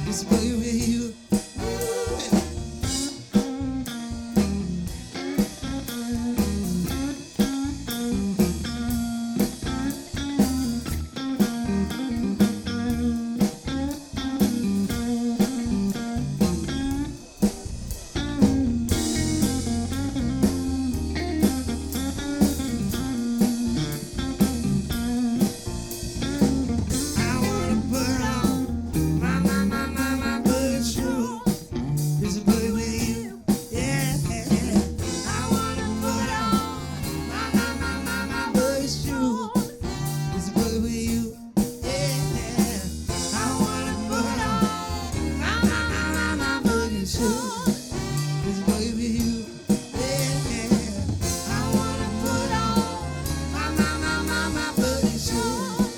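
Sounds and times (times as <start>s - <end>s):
live funk band playing: 0.0s - 55.9s.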